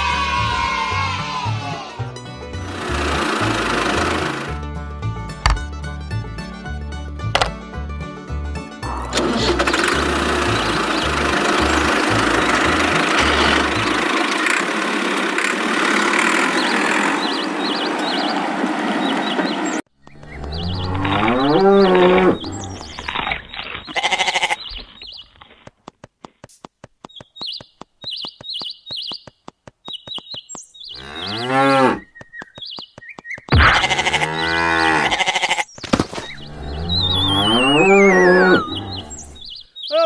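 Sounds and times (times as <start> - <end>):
cattle mooing: 11.6 - 14.0, 20.4 - 23.1, 30.9 - 32.0, 33.6 - 35.6, 36.4 - 39.4
quick run of ticks: 24.7 - 31.0, 32.0 - 34.0.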